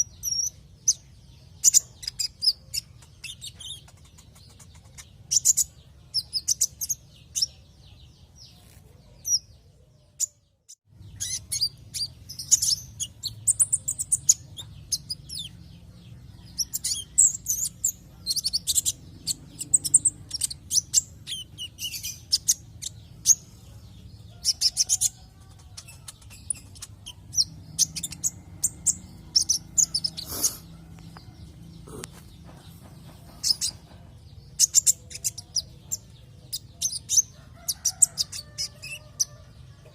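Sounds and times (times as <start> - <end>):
bird singing high rapid chirps: 0.0 - 9.5, 10.2 - 39.4.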